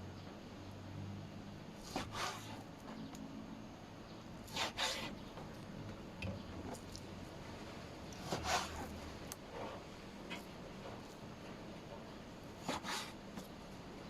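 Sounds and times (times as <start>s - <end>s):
rasping scrapes: 1.8s - 2.7s, 4.5s - 5.2s, 8.2s - 11.0s, 12.6s - 13.5s.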